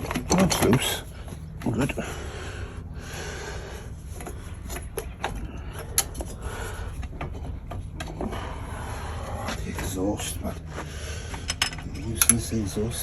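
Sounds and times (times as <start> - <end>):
metal clicks and scraping: 4.1 - 6.4.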